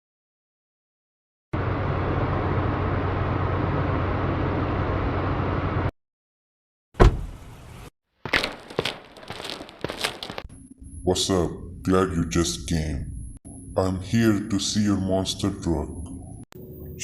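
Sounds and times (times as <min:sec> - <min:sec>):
truck engine deep hum: 0:01.6 - 0:05.9
sharp loud thump: 0:07.0 - 0:07.4.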